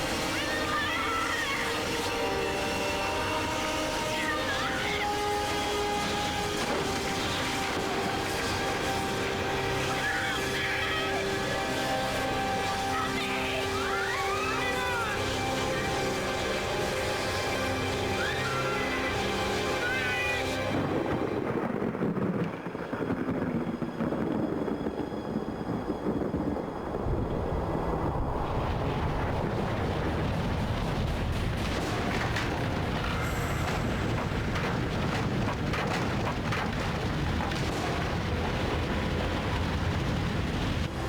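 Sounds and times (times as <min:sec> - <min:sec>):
crashes: 0:00.0 - 0:24.2
roaring tornado wind: 0:00.0 - 0:41.0.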